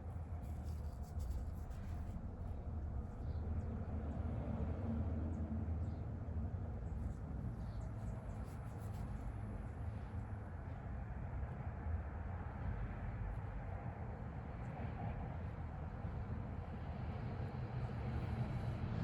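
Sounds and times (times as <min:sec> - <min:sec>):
low room hum: 0:00.0 - 0:19.0
paintbrush ticks and scratches: 0:00.3 - 0:03.4, 0:06.9 - 0:10.2.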